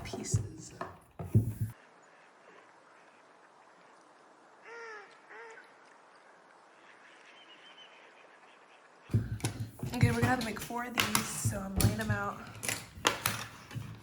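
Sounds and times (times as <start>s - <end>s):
faint bird-like calls: 1.7s - 9.4s.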